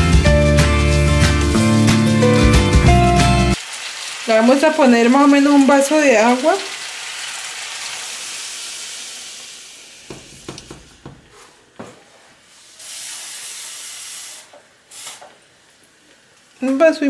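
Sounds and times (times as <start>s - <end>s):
water sizzling in hot pan: 3.5s - 10.7s, 12.5s - 17.0s.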